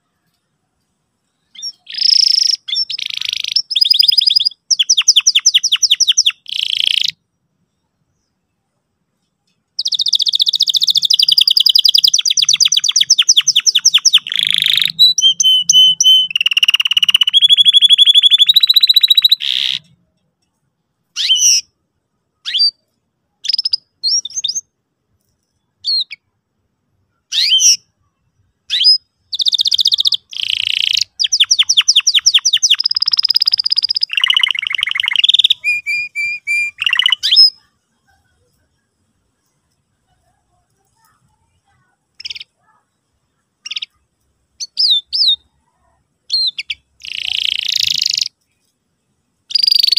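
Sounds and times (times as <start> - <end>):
canary singing trills: 1.4 - 7.2, 9.8 - 20.0, 21.2 - 21.7, 23.4 - 24.7, 27.3 - 27.9, 28.7 - 38.7, 42.1 - 48.5, 49.5 - 49.9.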